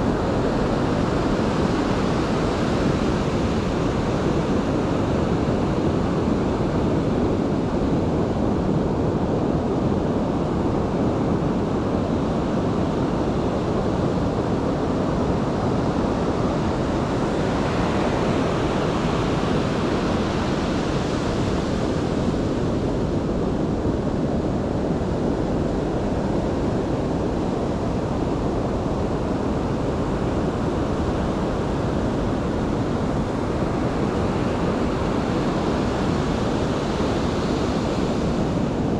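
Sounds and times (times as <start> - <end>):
ocean surf roaring: 0.0 - 8.0, 12.3 - 38.9.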